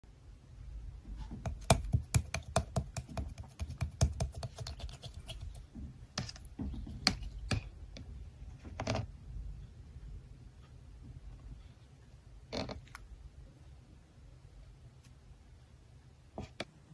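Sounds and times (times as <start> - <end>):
slime clicking and squishing: 1.4 - 7.7.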